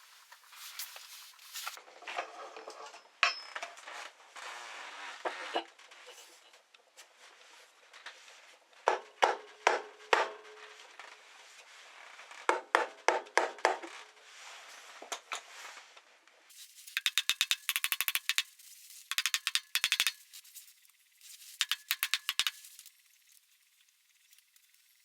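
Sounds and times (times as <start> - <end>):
ratchet wrench clicking: 17.0 - 20.4, 21.6 - 22.9.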